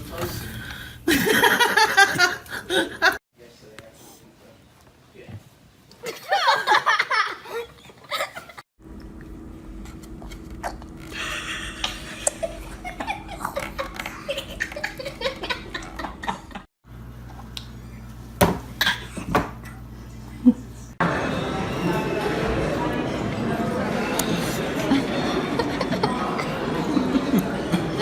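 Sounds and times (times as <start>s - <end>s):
people laughing: 1.1s - 3.2s, 6.0s - 8.6s, 11.2s - 16.7s, 23.9s - 28.0s.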